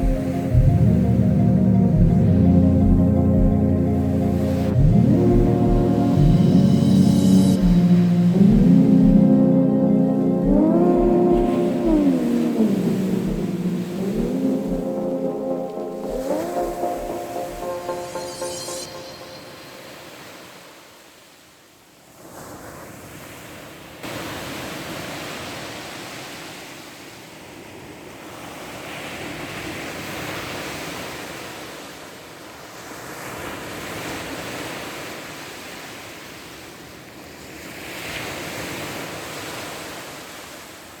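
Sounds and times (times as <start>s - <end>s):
surf breaking on shore: 5.2s - 20.7s.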